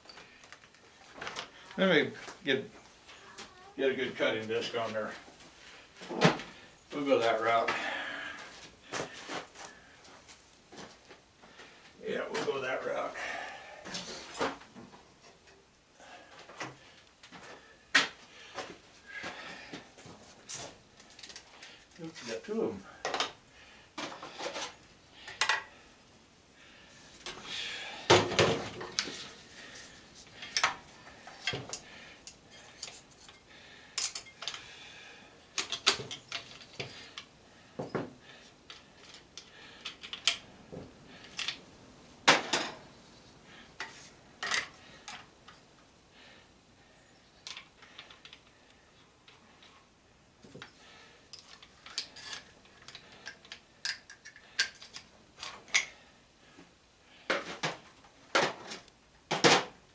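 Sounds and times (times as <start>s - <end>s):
metal tools clinking and clanking: 31.4s - 34.6s, 50.6s - 55.9s.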